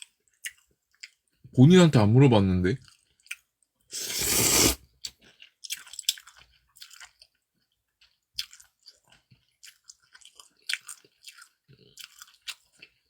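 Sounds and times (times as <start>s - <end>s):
short loud rush of noise: 4.0s - 4.8s
person chewing crunchy food: 4.0s - 7.4s, 8.0s - 13.0s.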